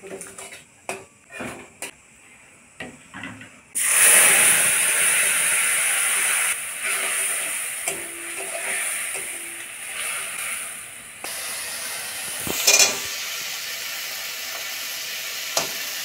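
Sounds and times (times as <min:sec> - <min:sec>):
paste sizzling in hot oil: 0:03.8 - 0:16.0.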